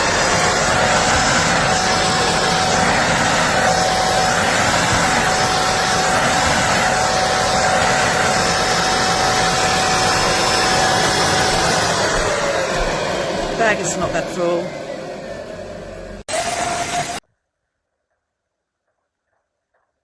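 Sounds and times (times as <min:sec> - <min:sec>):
vacuum cleaner motor whining: 0:00.0 - 0:17.2.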